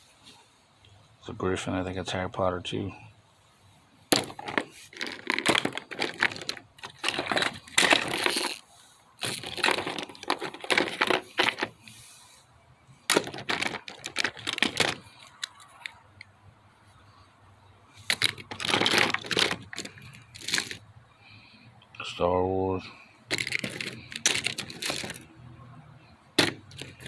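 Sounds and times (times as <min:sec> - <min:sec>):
plastic toy figures clacking: 0:04.1 - 0:08.6, 0:09.2 - 0:11.9, 0:13.1 - 0:16.0, 0:18.0 - 0:20.8, 0:23.3 - 0:25.3, 0:26.4 - 0:27.0.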